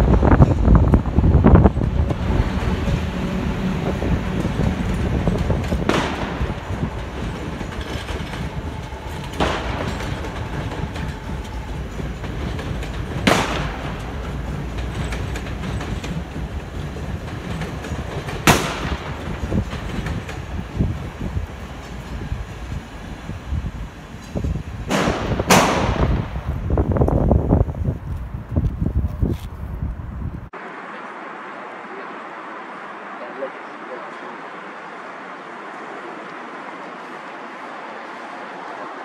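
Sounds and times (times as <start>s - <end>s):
train rumbling and rattling: 0.0s - 39.0s
sharp cracks: 5.6s - 8.4s, 12.8s - 15.8s, 18.3s - 19.9s.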